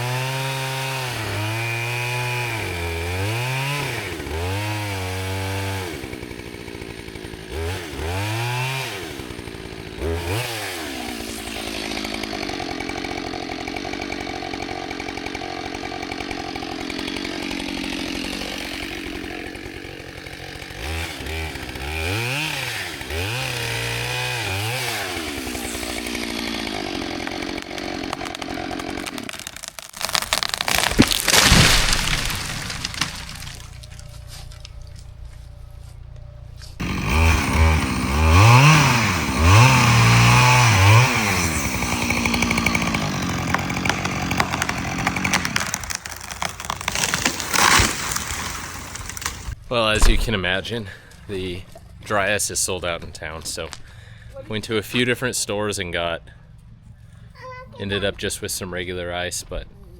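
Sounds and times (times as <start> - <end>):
gas chainsaw revving and cutting: 0.0 - 34.2, 36.8 - 50.3
tree cracking and crashing down: 3.3 - 35.5, 36.7 - 50.6.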